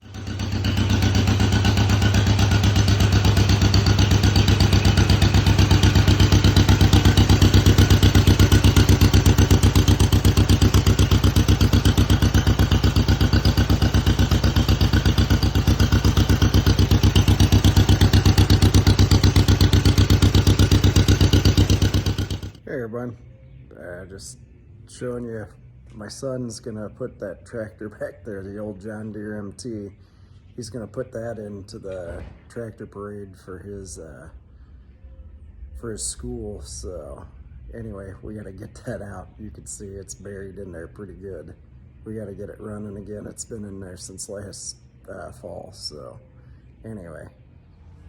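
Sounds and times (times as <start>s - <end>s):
tractor engine idling: 0.0s - 23.1s.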